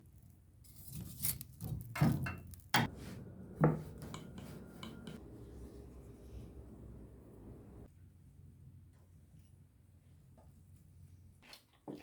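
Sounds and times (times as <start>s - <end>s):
kitchenware knocking and clattering: 3.5s - 5.2s.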